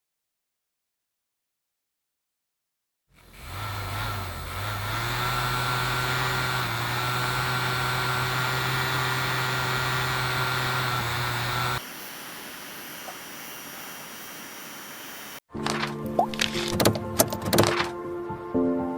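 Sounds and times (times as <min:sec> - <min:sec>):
mechanical hum with whine: 0:06.9 - 0:15.4
thin hiss: 0:11.9 - 0:15.4.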